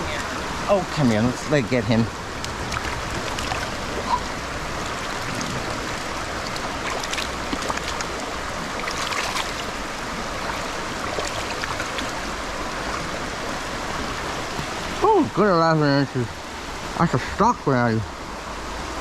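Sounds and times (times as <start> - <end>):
water splashes: 0.0 - 17.1
stream water rushing: 0.0 - 19.0.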